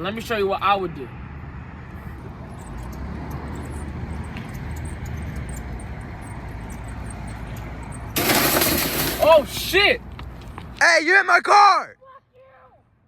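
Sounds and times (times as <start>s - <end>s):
car collision crash: 8.2s - 9.6s.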